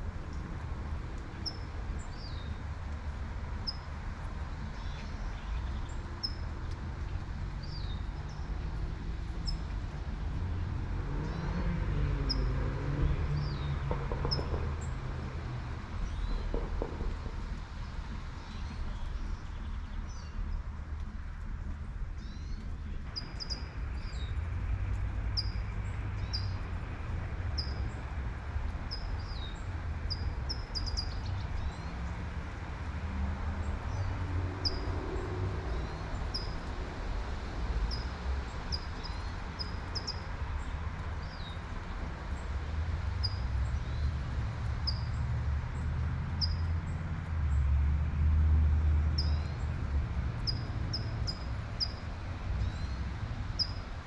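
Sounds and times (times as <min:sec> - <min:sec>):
road traffic rumble: 0:00.0 - 0:54.0
car passing: 0:41.7 - 0:54.0.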